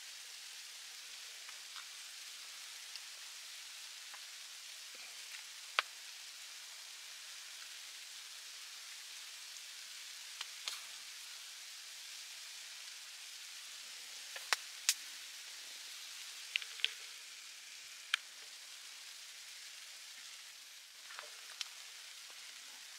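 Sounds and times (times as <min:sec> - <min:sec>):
food sizzling in hot dish: 0:00.0 - 0:22.9
sharp pops and crackles: 0:01.0 - 0:06.5, 0:09.9 - 0:11.4, 0:13.4 - 0:22.9.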